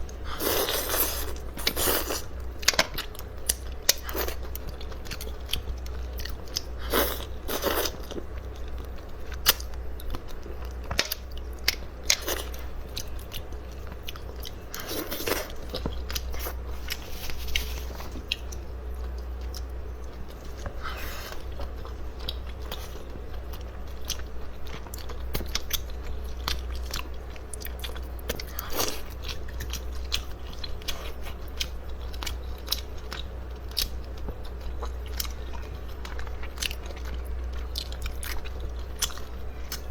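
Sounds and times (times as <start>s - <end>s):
person chewing seafood: 0.0s - 39.9s
steady low hum: 0.0s - 39.9s.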